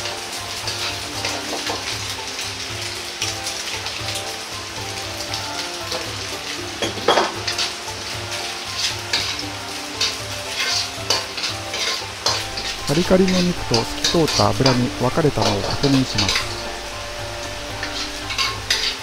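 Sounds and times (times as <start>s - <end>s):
pork sizzling in a wok: 0.0s - 19.0s
metal ladle scraping a wok: 7.4s - 14.9s, 16.2s - 19.0s.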